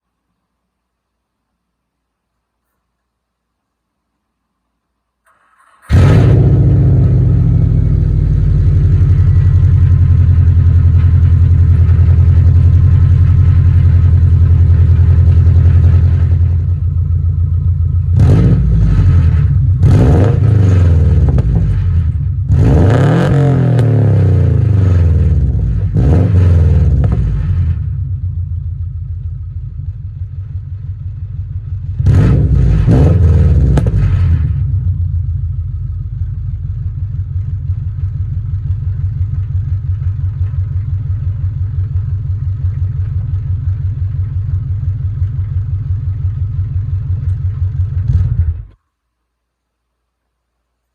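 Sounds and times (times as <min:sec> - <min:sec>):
car engine starting and idling: 0:05.2 - 0:48.8
engine revving in blips: 0:05.6 - 0:14.0, 0:18.0 - 0:28.2, 0:31.9 - 0:35.0, 0:46.9 - 0:48.8.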